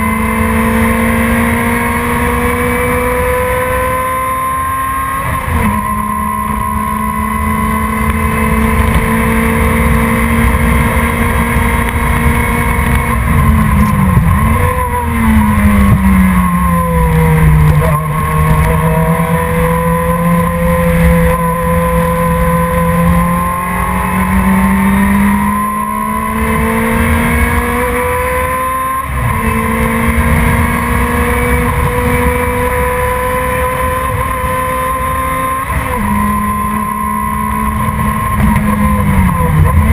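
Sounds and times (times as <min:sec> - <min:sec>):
racing car engine at speed: 0:00.0 - 0:39.9.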